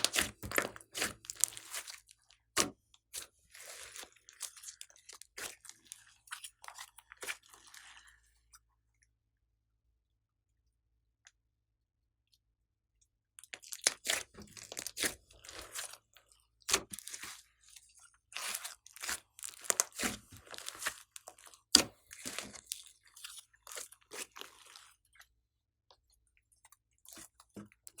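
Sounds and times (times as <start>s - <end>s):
slime crackling and popping: 0.0s - 2.7s, 13.6s - 16.0s, 18.4s - 22.8s.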